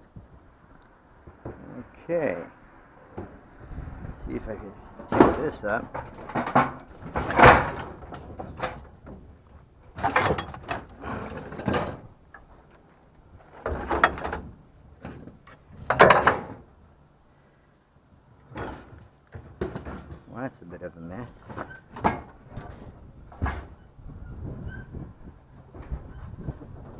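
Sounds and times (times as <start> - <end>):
scrap metal clattering and scraping: 4.7 - 16.7, 18.5 - 20.4, 21.2 - 24.0.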